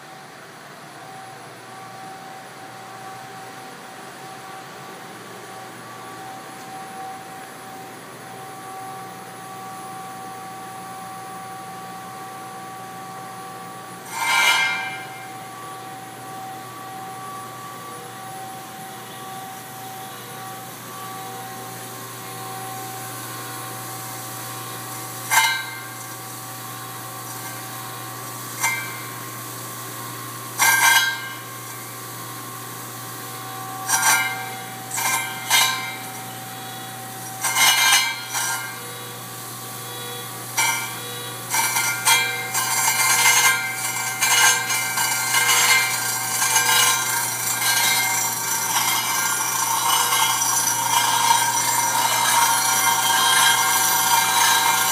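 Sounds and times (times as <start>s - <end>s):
grinder humming: 1.3s - 54.9s
stone grating on grinding disks: 14.0s - 15.4s, 25.1s - 26.2s, 27.2s - 29.2s, 30.6s - 31.8s, 33.8s - 36.5s, 37.1s - 38.9s, 40.6s - 54.9s.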